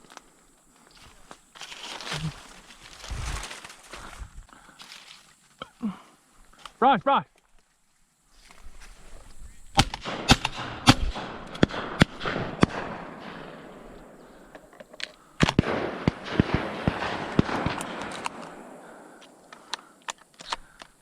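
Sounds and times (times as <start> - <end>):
shotguns firing: 9.8 - 14.6, 15.3 - 19.8.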